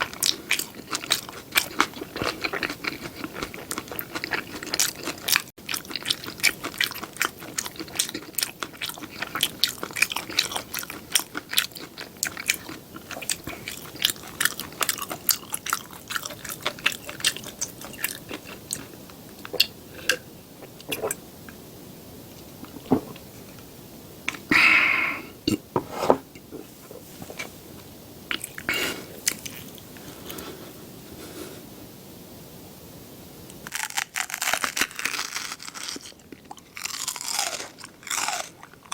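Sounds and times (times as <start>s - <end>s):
chewing and crunching crispy food: 0.0s - 21.2s, 28.3s - 30.5s, 33.6s - 38.9s.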